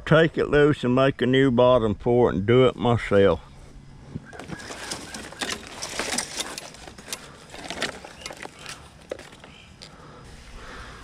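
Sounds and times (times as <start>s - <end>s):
hard objects clicking and rattling: 4.3s - 10.0s.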